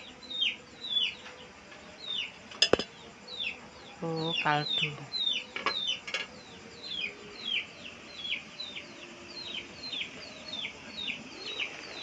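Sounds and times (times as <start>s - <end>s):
metal steamer tray clinks: 2.6s - 2.9s.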